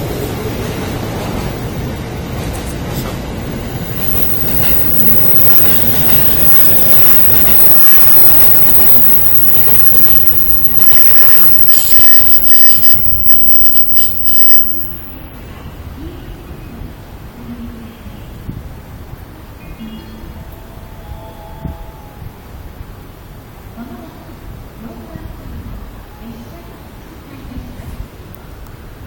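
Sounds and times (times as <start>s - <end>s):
train wheel and rail noise: 0.0s - 29.0s
high-pitched wheel squeal: 3.6s - 15.2s.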